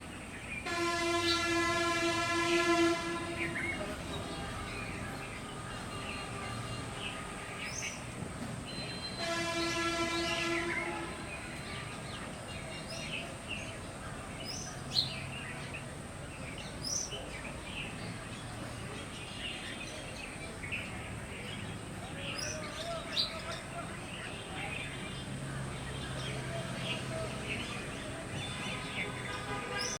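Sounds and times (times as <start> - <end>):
bulbuls chirping: 0.0 - 30.0
horn blowing: 0.6 - 8.1, 8.7 - 12.0, 28.5 - 30.0.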